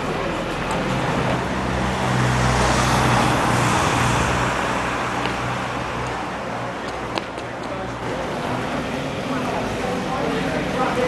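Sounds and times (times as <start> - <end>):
large vehicle passing: 0.0 - 11.0.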